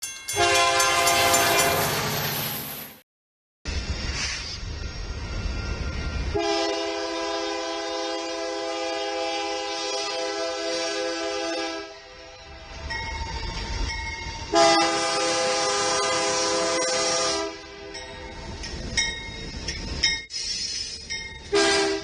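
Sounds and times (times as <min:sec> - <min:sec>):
passing train rumble: 0:00.0 - 0:03.0, 0:03.7 - 0:22.0
locomotive air horn chord: 0:00.4 - 0:02.2, 0:06.3 - 0:12.1, 0:14.5 - 0:17.8, 0:21.5 - 0:22.0.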